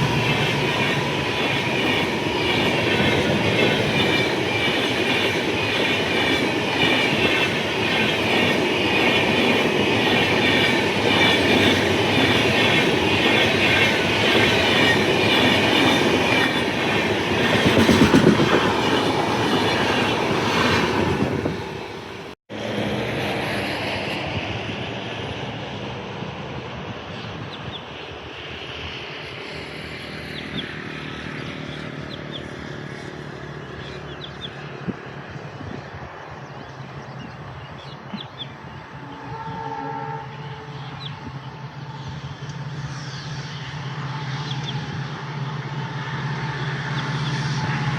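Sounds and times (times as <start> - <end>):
train wheels clattering: 0.0 - 21.3
train rumble: 0.0 - 47.9.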